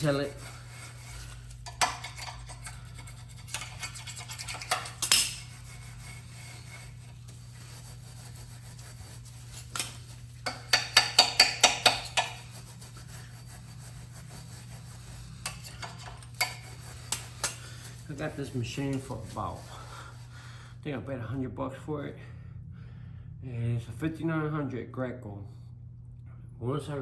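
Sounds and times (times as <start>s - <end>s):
scraping on metal parts: 0.0s - 19.8s
scrubbing strokes: 0.0s - 20.6s
steady low hum: 0.0s - 27.0s.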